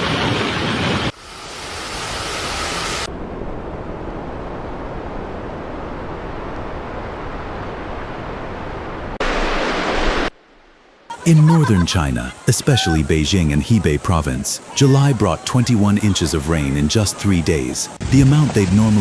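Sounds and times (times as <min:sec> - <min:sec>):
floodwater rushing: 0:09.1 - 0:19.0.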